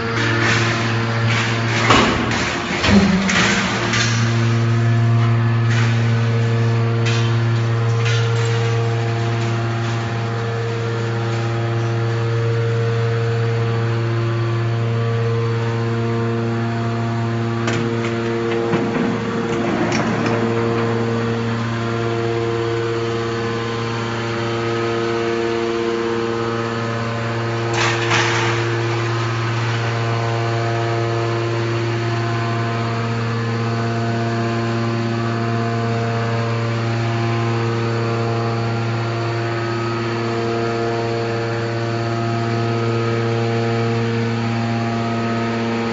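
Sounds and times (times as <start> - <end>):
scrap metal clattering: 0.0 - 11.9, 17.6 - 23.5, 27.7 - 29.9
baler motor and pump hum: 0.0 - 45.9.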